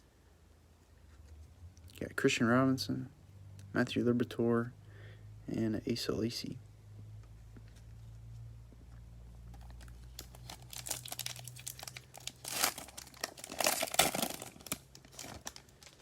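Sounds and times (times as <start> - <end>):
wrapper tearing and crinkling: 9.5 - 16.0.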